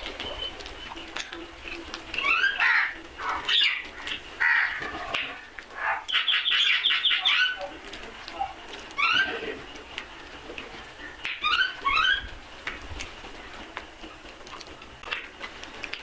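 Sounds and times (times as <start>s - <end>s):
crows cawing: 2.3s - 7.4s.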